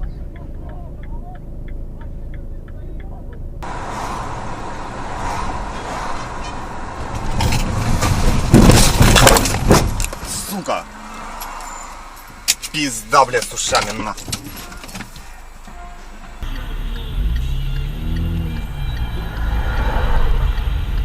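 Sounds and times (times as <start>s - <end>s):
light regular ticking: 0.0s - 3.6s
car engine noise: 0.0s - 21.0s
car road rumble: 0.0s - 21.0s
collision bangs and crunching: 7.0s - 10.4s.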